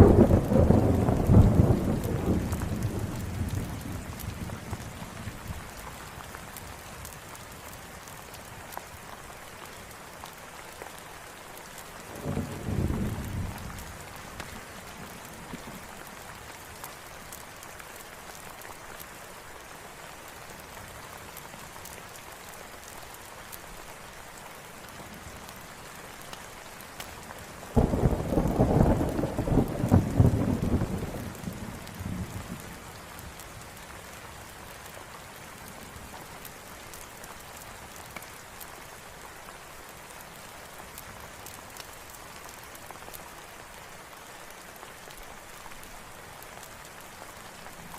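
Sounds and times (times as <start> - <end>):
thunder rumbling: 0.0 - 4.9, 27.8 - 33.0
steady rain: 0.0 - 47.9.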